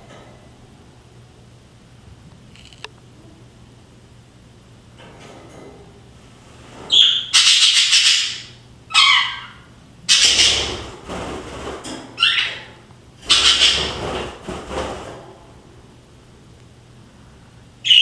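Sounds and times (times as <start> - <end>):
budgies chirping: 6.9 - 10.8, 12.2 - 14.0
budgies squawking: 6.9 - 10.8, 12.2 - 14.0.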